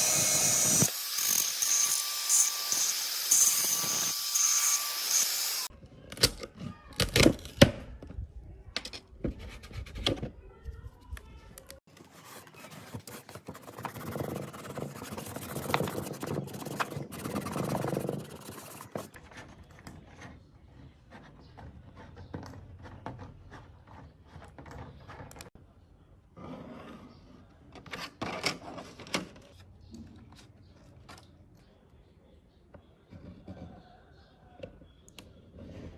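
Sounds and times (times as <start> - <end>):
scraping or rubbing: 12.0 - 25.6.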